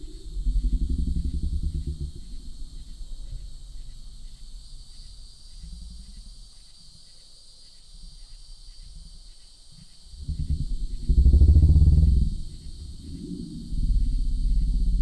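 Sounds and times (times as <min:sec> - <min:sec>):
insect chorus: 0:00.0 - 0:15.0
low rumbling: 0:10.1 - 0:15.0.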